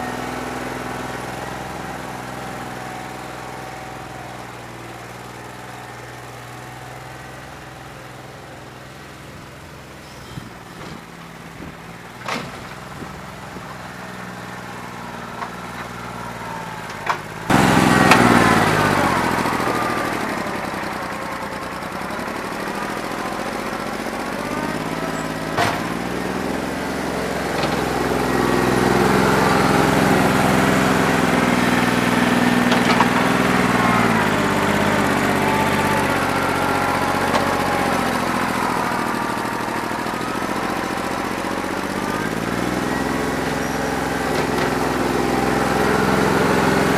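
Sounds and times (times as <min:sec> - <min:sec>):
engine knocks: 0:00.0 - 0:46.9
tractor diesel engine running: 0:00.0 - 0:46.9.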